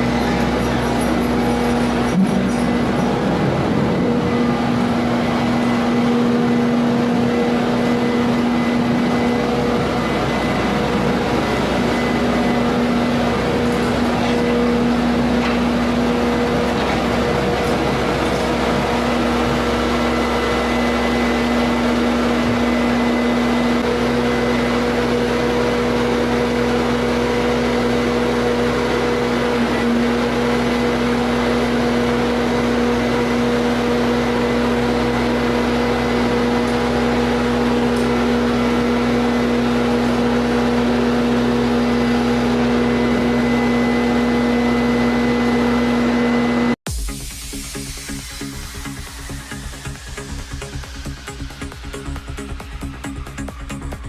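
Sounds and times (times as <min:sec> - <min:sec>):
farm machinery humming: 0:00.0 - 0:54.0.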